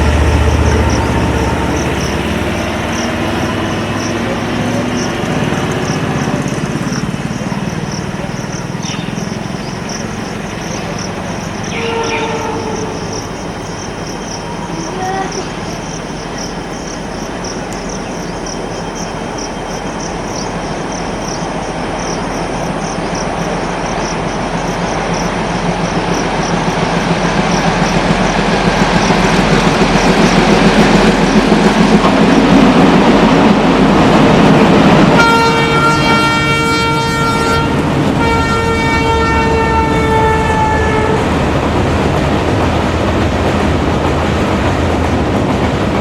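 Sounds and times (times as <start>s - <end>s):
locomotive horn blasts: 0.0s - 2.4s, 11.7s - 13.2s, 35.2s - 41.3s
train rumbling: 0.0s - 46.0s.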